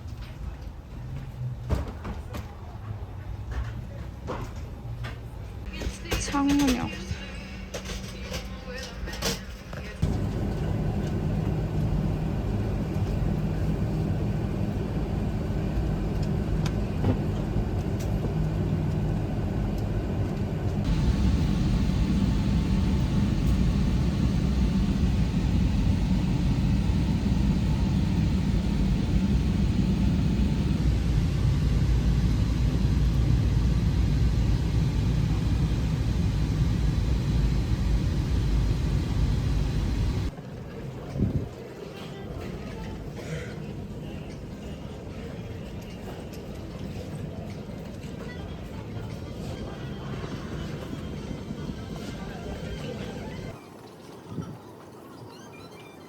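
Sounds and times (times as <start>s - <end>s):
airliner cabin rumble: 10.0s - 40.4s.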